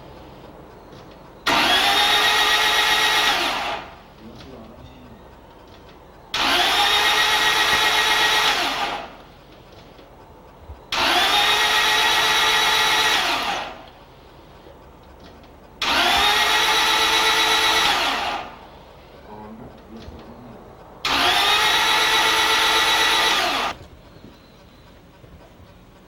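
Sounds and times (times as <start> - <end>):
starter motor cranking engine: 0.0 - 26.0.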